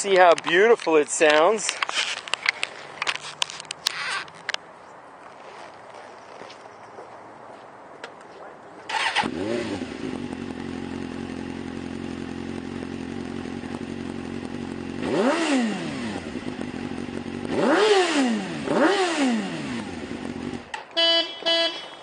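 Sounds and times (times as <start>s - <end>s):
motorcycle engine idling: 8.9s - 17.6s, 19.9s - 20.7s
motorcycle engine revving: 8.9s - 21.8s.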